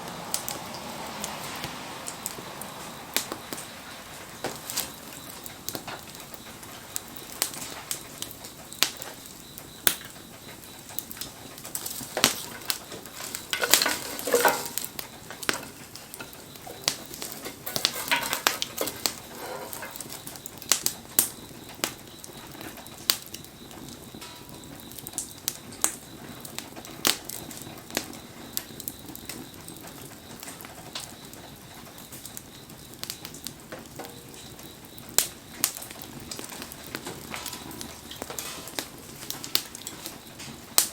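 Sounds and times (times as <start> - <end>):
campfire crackling and popping: 0.0 - 40.9
fire hissing: 0.0 - 40.9.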